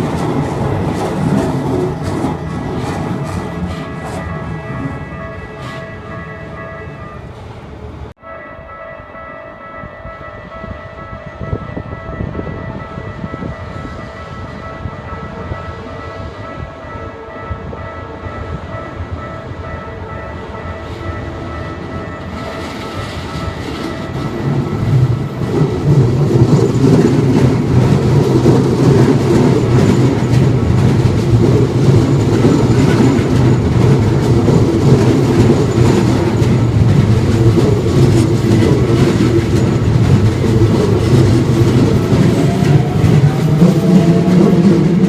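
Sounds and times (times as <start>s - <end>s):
train wheels clattering and rumbling: 0.0s - 6.6s, 19.2s - 45.0s.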